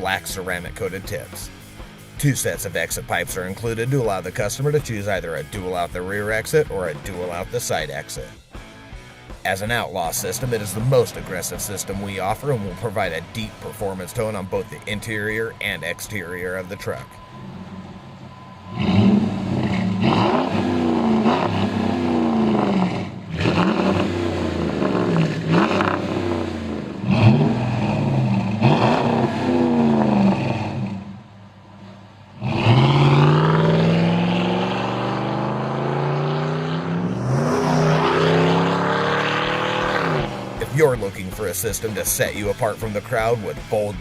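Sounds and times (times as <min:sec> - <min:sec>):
truck engine revving: 0:00.0 - 0:44.0.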